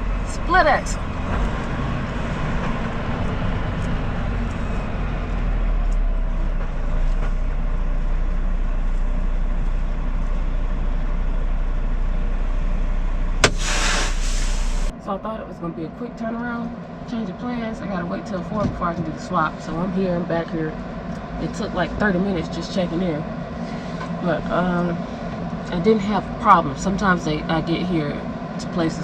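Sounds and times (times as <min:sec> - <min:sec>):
truck engine and road rumble: 0:00.0 - 0:29.0
short burst of hiss: 0:13.4 - 0:14.9.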